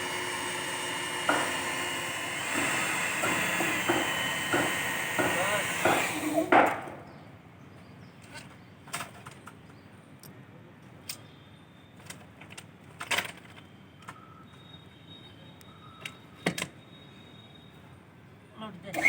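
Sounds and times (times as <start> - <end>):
construction knocks and taps: 1.1 - 7.0.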